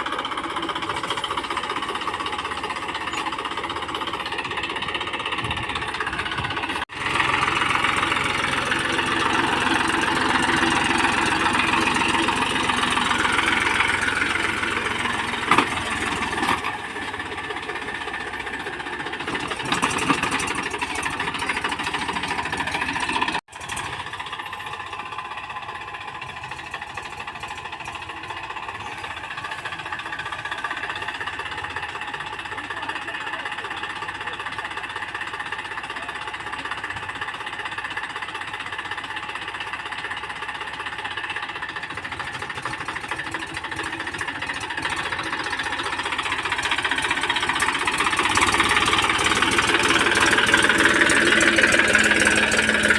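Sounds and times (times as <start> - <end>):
tractor diesel engine running: 0.0 - 52.9.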